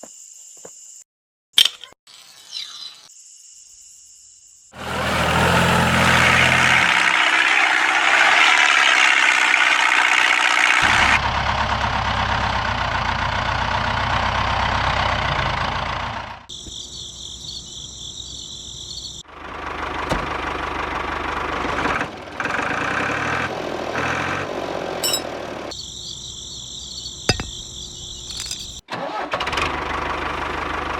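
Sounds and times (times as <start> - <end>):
insects chirping: 0.0 - 1.0, 2.2 - 4.7, 16.5 - 19.2, 25.0 - 28.8.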